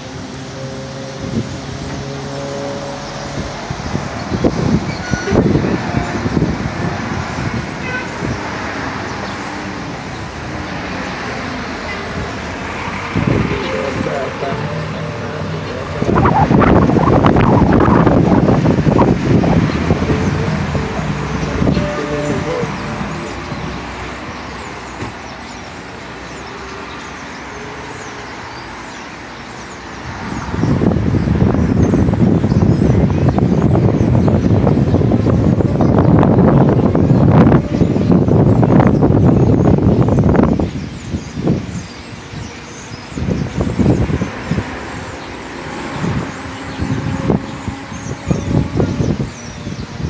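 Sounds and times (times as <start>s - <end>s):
road traffic with vehicles passing: 0.0s - 50.0s
birds chirping: 1.9s - 50.0s
loud low rumble: 12.8s - 24.0s.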